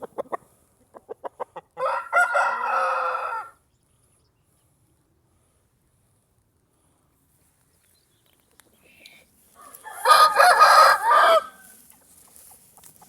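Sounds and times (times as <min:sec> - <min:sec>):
rooster clucking: 0:00.0 - 0:03.4, 0:09.7 - 0:11.7
rooster crowing: 0:01.8 - 0:03.6, 0:09.6 - 0:11.7.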